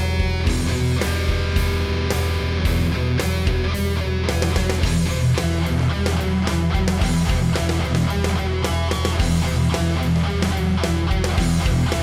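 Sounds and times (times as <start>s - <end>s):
distorted electric guitar: 0.0s - 12.0s
rock backing track with drums: 0.0s - 12.0s.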